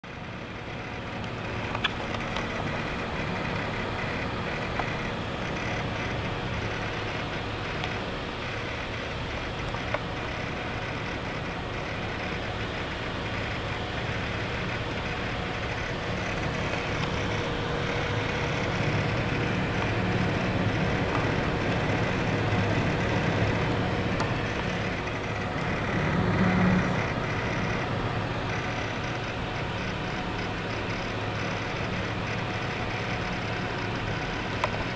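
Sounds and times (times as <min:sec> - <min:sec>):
cooler pump churning: 0:00.0 - 0:34.9
fan hiss: 0:00.1 - 0:34.9.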